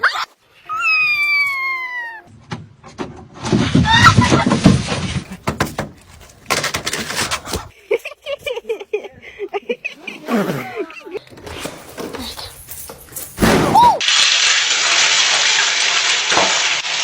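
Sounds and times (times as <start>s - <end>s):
cat meowing: 0.7s - 2.3s.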